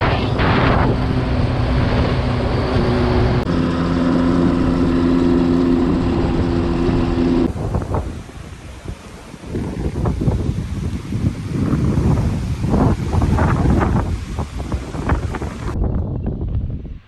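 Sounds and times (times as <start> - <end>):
vehicle engine rumbling: 0.0 - 16.4.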